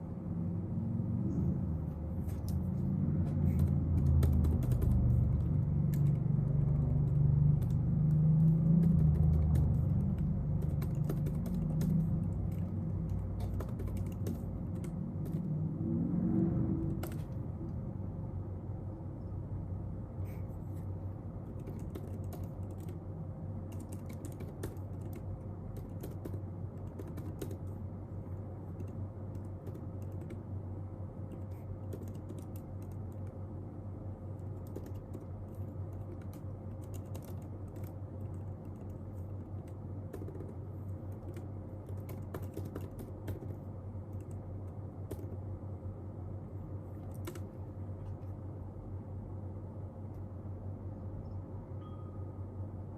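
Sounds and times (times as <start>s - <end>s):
low hum: 0.0s - 52.9s
keyboard key clicks: 3.3s - 15.5s, 23.7s - 27.6s, 36.0s - 45.4s, 47.1s - 47.5s.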